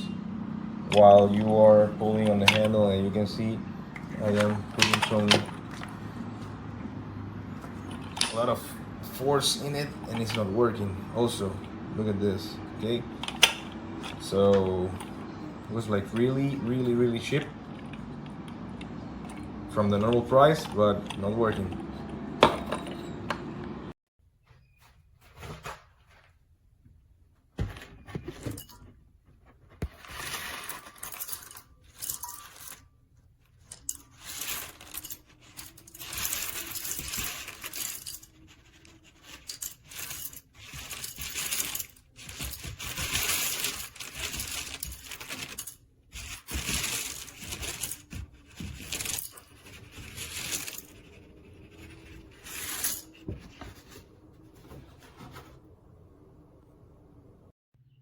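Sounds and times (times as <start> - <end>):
coffee grinder metallic clinking: 30.2 - 32.8, 33.7 - 53.1.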